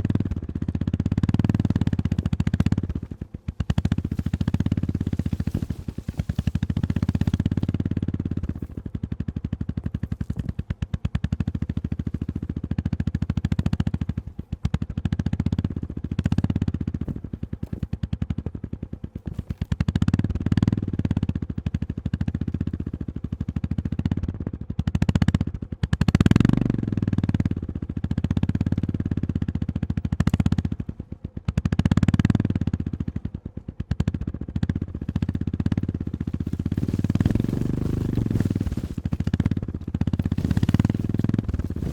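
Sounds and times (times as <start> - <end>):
motorcycle engine revving: 0.0 - 41.9
clatter and knocks on gravel road: 1.9 - 12.6, 15.6 - 19.9, 34.8 - 41.9.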